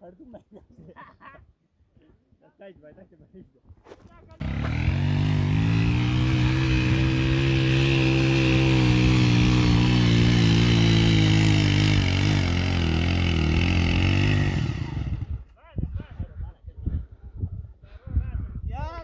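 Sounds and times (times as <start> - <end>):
motorcycle engine running: 4.4 - 15.5.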